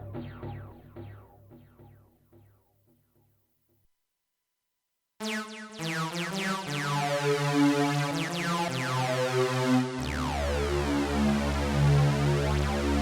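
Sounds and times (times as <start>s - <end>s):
buzzy synthesizer low notes: 5.2s - 13.0s
synthesizer notes: 5.2s - 13.0s
synthesizer sweeping sound: 5.2s - 13.0s.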